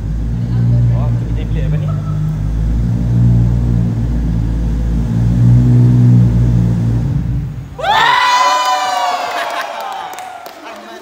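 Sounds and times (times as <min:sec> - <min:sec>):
sports car engine idling: 0:00.0 - 0:07.8
crowd screaming and cheering: 0:07.8 - 0:11.0.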